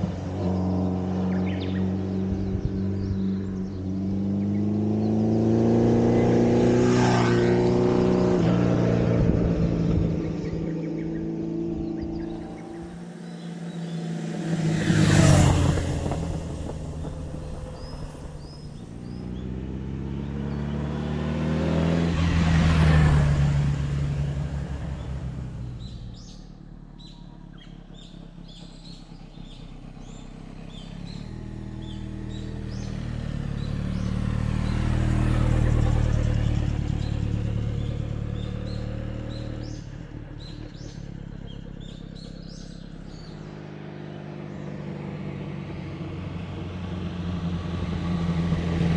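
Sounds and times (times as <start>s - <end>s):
motorcycle engine passing by: 0.0s - 48.9s
birds chirping: 0.1s - 8.3s, 8.9s - 23.6s, 24.2s - 46.7s.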